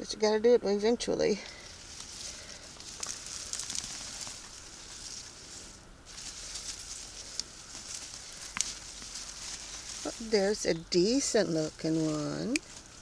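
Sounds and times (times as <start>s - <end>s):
digging through dry soil and vines: 1.2s - 13.0s
small ticks: 1.4s - 5.6s, 6.2s - 10.1s, 12.1s - 13.0s.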